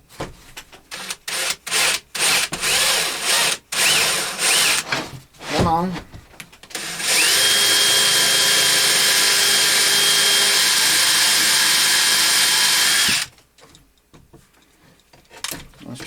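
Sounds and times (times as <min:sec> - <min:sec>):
power drill motor whining: 0:00.9 - 0:04.8, 0:06.7 - 0:13.3.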